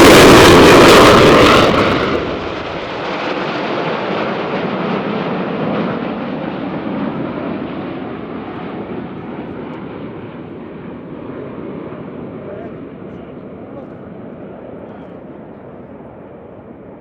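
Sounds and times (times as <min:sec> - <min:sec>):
jet engine rush: 0:00.0 - 0:17.0.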